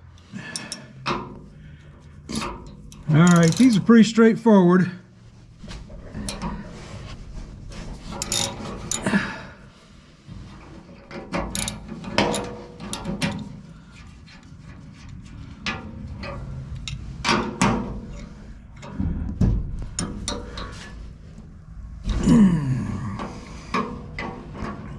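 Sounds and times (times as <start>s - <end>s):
hand tools clanking on metal: 0.4s - 1.4s, 2.3s - 4.0s, 8.1s - 9.4s, 11.3s - 13.5s.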